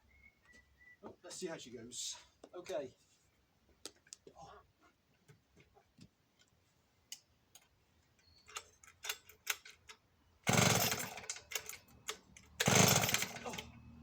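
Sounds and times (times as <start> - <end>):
chainsaw being handled clicks: 8.5 - 13.7
chainsaw starter cord pulled: 8.5 - 13.8.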